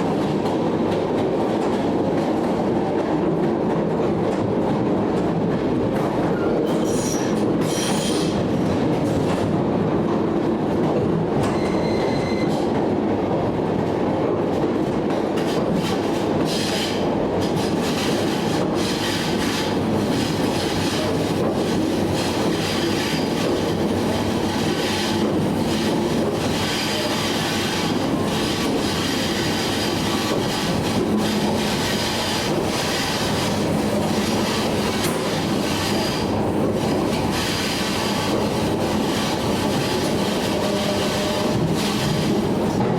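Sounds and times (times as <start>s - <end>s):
train wheels clacking: 4.2s - 9.6s, 14.5s - 42.9s.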